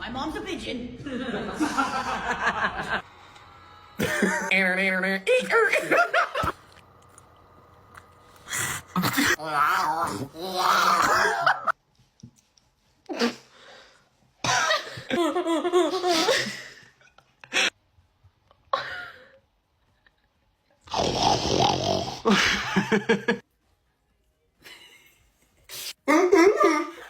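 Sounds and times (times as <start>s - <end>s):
person laughing: 1.3s - 3.0s, 4.0s - 4.5s, 5.4s - 6.7s
silly vocal noises: 8.2s - 11.7s.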